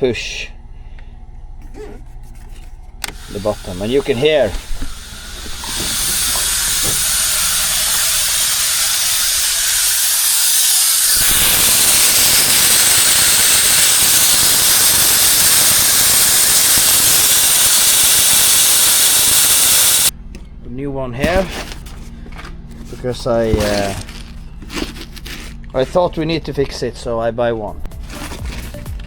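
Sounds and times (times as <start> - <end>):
compressed air hissing: 3.0 - 20.1.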